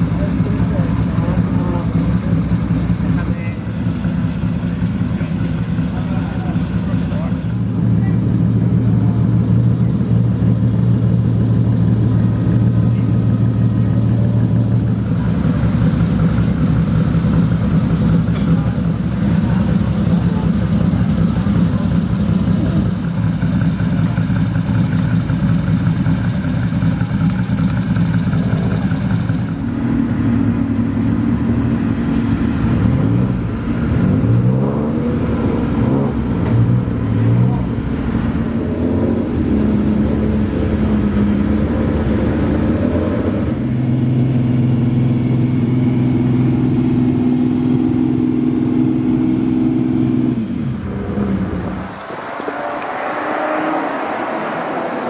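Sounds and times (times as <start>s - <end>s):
racing car engine revving: 14.6s - 55.0s.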